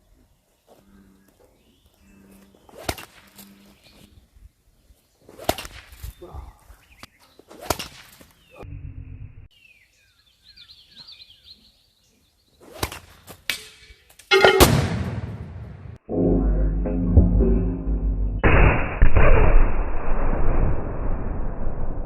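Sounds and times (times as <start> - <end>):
birds chirping: 0.0 - 5.3, 5.9 - 8.7, 9.5 - 14.6
sling whip-like cracks: 2.8 - 3.3, 5.3 - 6.1, 7.5 - 8.2, 12.7 - 13.8.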